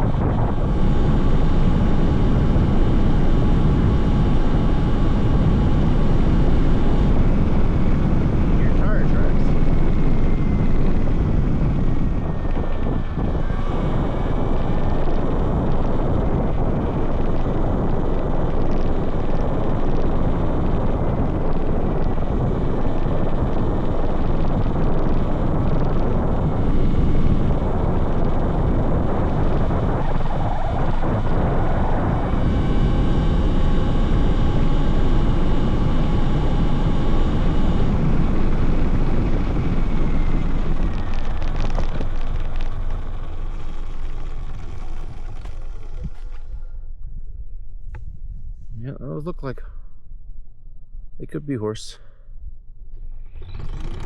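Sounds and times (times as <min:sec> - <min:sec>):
electric motor whine: 0:00.0 - 0:46.8, 0:53.1 - 0:54.0
wind buffeting microphone: 0:00.0 - 0:51.2
tyre rumble: 0:39.1 - 0:48.9.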